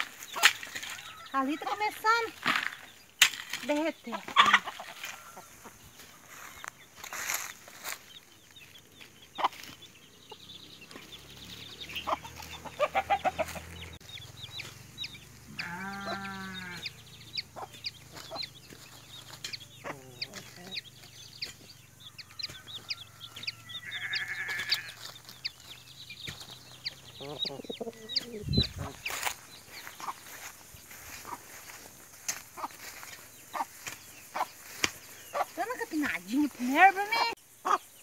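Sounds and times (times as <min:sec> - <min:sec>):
hens clucking: 0:00.0 - 0:03.0, 0:03.6 - 0:38.0
chicks peeping: 0:00.0 - 0:38.0
drawn-out bird call: 0:09.3 - 0:34.6.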